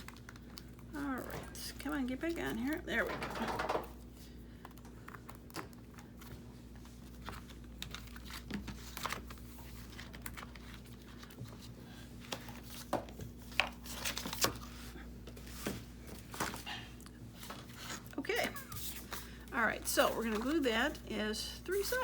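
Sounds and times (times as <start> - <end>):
faint steady hum: 0.0 - 22.0
paper rustling: 5.0 - 16.6.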